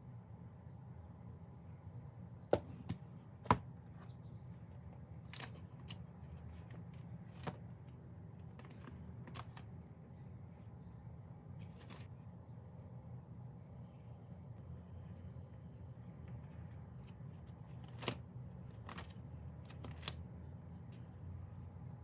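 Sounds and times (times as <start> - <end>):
objects and packaging clicking: 8.4 - 9.6.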